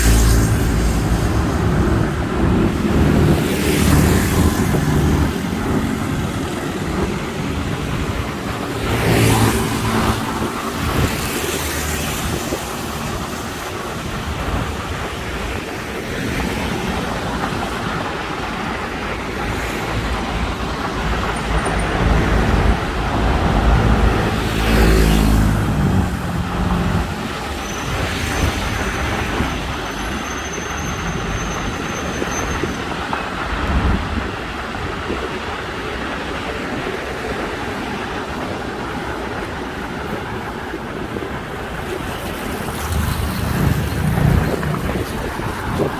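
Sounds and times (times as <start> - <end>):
passing cars: 0.0 - 45.9
heavy vehicle rumbling past: 42.1 - 45.9.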